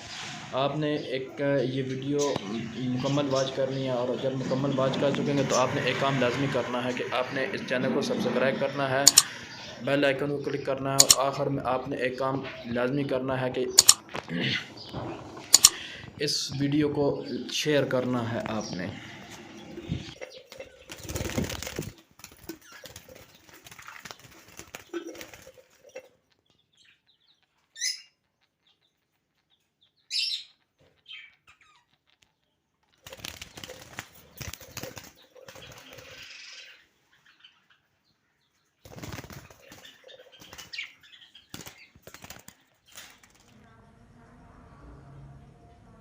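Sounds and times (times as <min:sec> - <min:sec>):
high bird chirps: 0:00.0 - 0:17.6, 0:18.4 - 0:43.1
budgerigars flapping wings: 0:04.4 - 0:10.0, 0:11.0 - 0:11.4, 0:13.7 - 0:16.2, 0:18.1 - 0:26.2, 0:33.0 - 0:36.5, 0:38.8 - 0:43.5.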